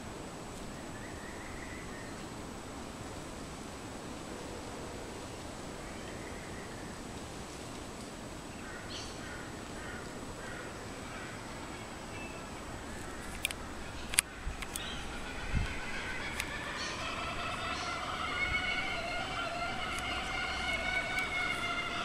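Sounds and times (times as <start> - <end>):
outdoor background hiss: 0.0 - 22.0
sharp clicks: 13.0 - 17.0, 18.8 - 21.8.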